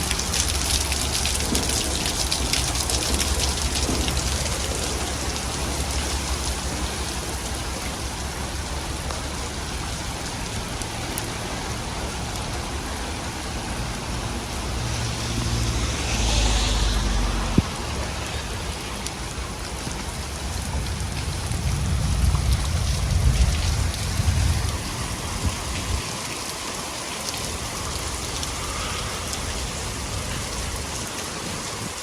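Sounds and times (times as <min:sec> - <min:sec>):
rain splashing on street: 0:00.0 - 0:32.0.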